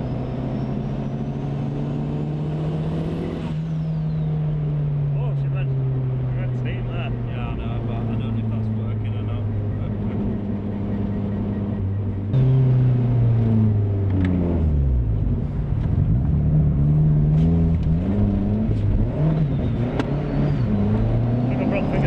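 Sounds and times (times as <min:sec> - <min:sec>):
turbocharged car engine revving: 0:00.0 - 0:22.0.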